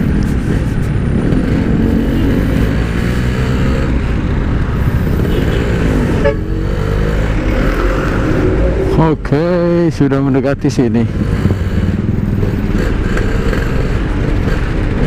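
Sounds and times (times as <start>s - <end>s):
two-stroke motorcycle engine: 11.1s - 15.0s.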